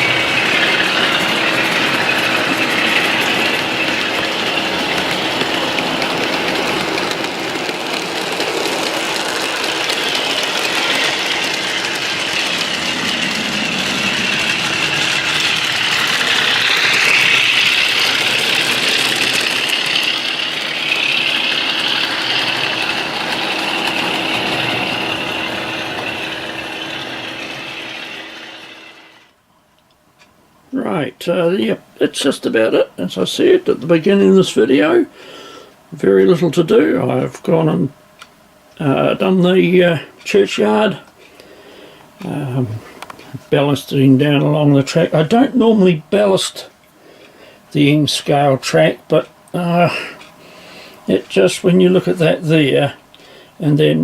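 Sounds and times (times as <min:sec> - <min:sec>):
electric motor whine: 0:00.0 - 0:29.4
train wheels on rails: 0:00.0 - 0:29.4, 0:47.8 - 0:54.0.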